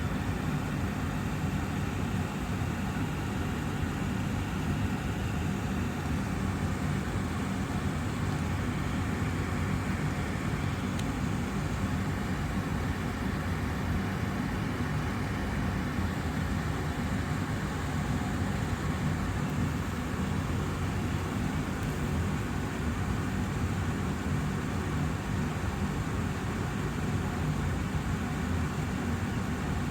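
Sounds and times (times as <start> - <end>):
air purifier fan running: 0.0 - 29.9.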